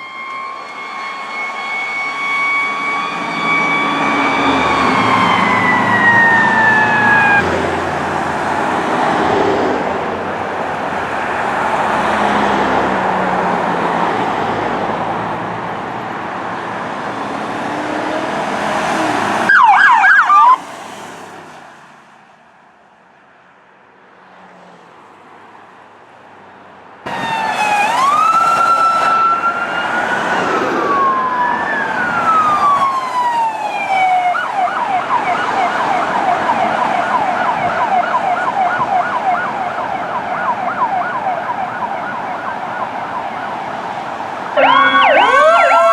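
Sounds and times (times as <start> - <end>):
rapid siren yelp: 0.0 - 7.4, 19.5 - 20.6, 27.1 - 45.9
siren wailing: 0.0 - 7.5, 17.8 - 20.6, 27.1 - 45.9
engine and road noise: 0.0 - 45.9.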